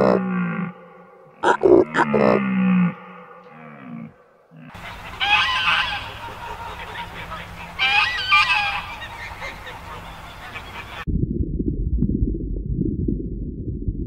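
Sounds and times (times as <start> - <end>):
geese honking: 4.6 - 11.0.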